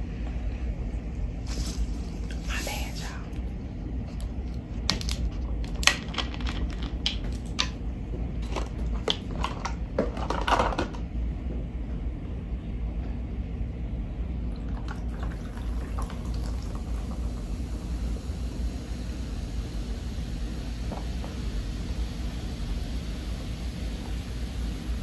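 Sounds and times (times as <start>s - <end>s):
steady low hum: 0.0s - 25.0s
soda bottle hiss: 1.4s - 3.2s, 15.3s - 25.0s
soda pouring into plastic cup: 14.6s - 25.0s.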